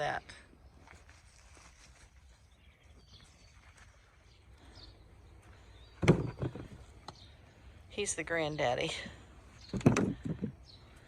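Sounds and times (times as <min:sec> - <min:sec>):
faint bird chirps: 0:02.2 - 0:07.8
knocks and thuds: 0:06.0 - 0:06.8, 0:09.7 - 0:10.6.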